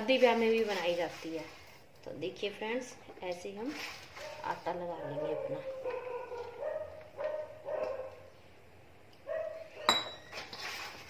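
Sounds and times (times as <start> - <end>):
dog barking: 4.2 - 8.3, 9.2 - 10.0.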